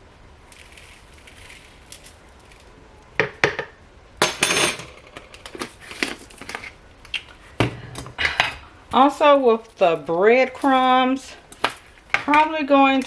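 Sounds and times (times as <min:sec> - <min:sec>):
kitchen utensils clinking: 0:04.2 - 0:06.1.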